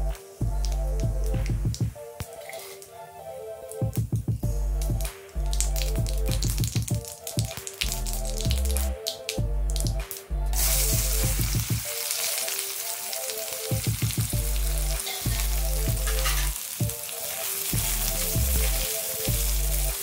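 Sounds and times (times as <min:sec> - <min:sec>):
background music: 0:00.0 - 0:20.0
onions frying in hot oil: 0:10.6 - 0:20.0.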